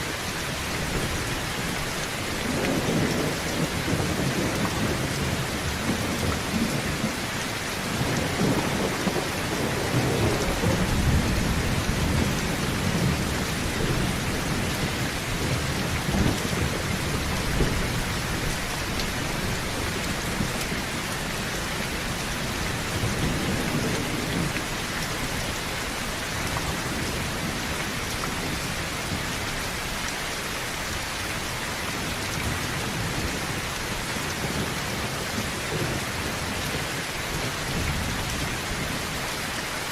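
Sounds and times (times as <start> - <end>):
heavy rain on a tin roof: 0.0 - 39.9
low thunder rumbling: 2.4 - 25.4.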